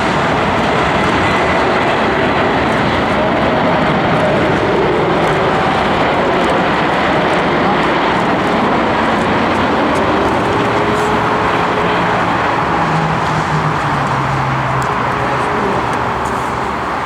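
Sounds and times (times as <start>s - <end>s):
aircraft engines roaring: 0.0s - 17.0s
faint shifting tones: 4.8s - 17.0s.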